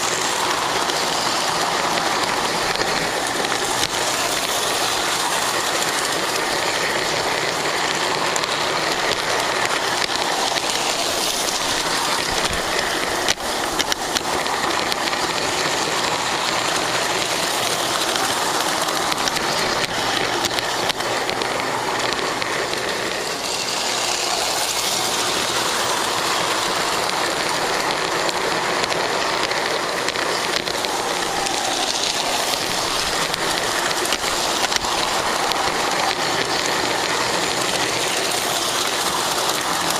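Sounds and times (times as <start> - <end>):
model train running on track: 0.0 - 39.9.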